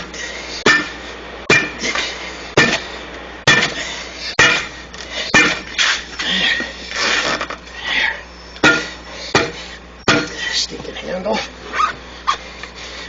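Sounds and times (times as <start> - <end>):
hand tools striking steel rim: 0.6 - 2.0, 4.4 - 4.7, 5.3 - 5.9, 8.6 - 10.4.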